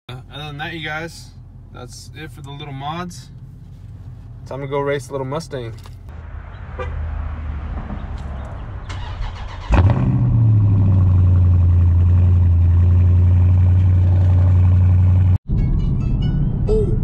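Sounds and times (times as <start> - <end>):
car engine starting and idling: 7.8 - 15.4.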